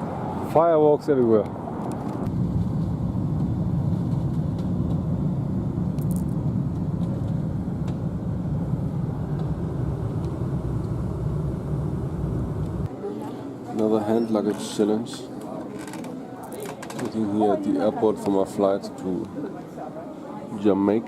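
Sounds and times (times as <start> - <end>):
vehicle driving rumble: 1.6 - 12.9.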